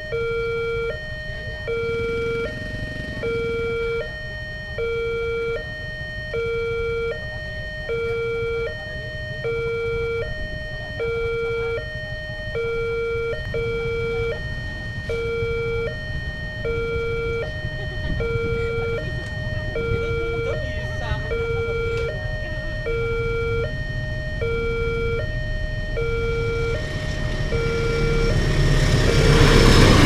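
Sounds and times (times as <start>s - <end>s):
two-tone crossing siren: 0.0s - 30.0s
low rumble: 12.0s - 30.0s.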